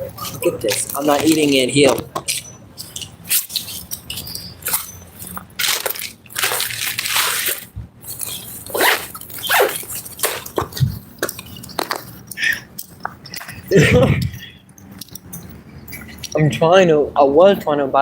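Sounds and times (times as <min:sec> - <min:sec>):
rustling: 0:00.0 - 0:12.3.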